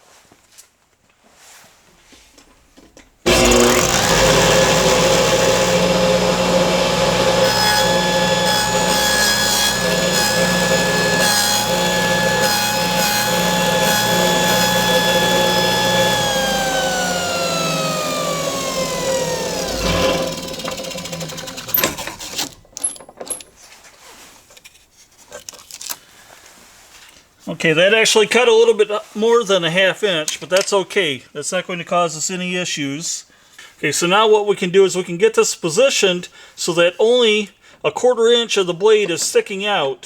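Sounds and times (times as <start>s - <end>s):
blade cutting into wood: 3.3s - 22.6s
table saw whining: 3.3s - 22.9s.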